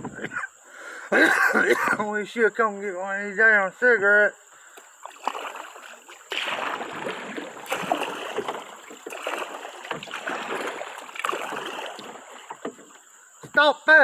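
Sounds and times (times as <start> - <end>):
paddle splashing in water: 4.7 - 13.6.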